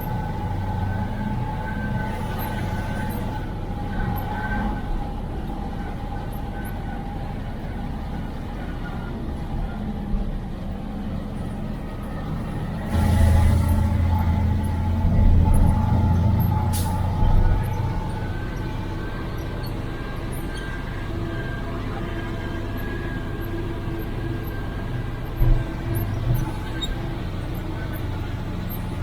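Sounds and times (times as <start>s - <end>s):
diesel truck engine running: 0.0s - 29.0s.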